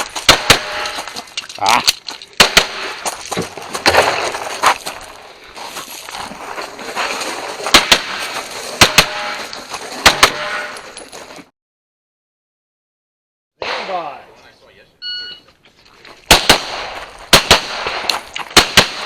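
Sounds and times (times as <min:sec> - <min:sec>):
pistol shots: 0:00.2 - 0:01.0, 0:02.4 - 0:03.0, 0:07.7 - 0:08.2, 0:08.8 - 0:09.4, 0:10.0 - 0:10.7, 0:16.3 - 0:19.0.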